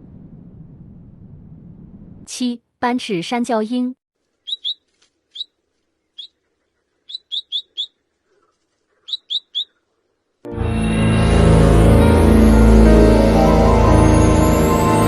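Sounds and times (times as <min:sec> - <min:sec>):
bird chirping: 0:04.4 - 0:10.0.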